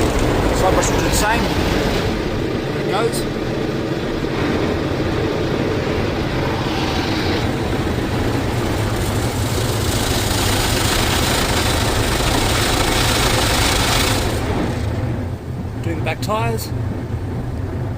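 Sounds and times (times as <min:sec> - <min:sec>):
low machine rumble: 0:00.0 - 0:17.9
spraying water: 0:06.8 - 0:14.8
car wash brush scrubbing: 0:07.6 - 0:14.8.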